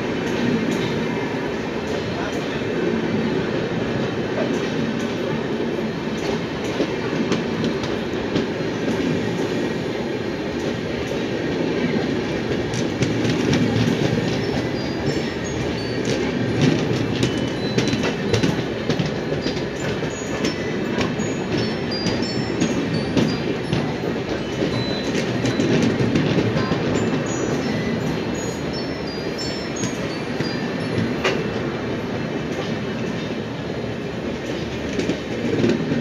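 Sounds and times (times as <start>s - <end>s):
train passing on rails: 0.0s - 36.0s
wheels clacking over rail joints: 10.5s - 36.0s.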